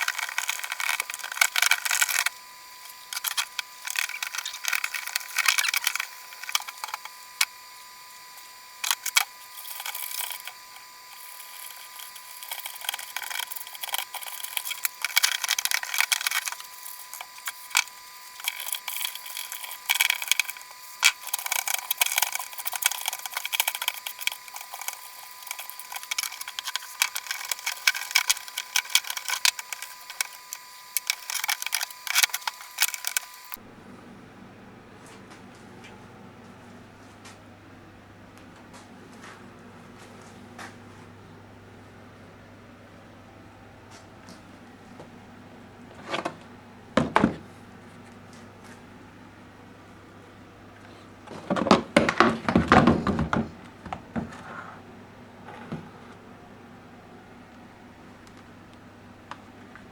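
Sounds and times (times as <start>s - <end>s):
scrubbing and scraping: 0.0s - 7.5s, 8.4s - 33.5s
faint high whine: 0.0s - 34.8s.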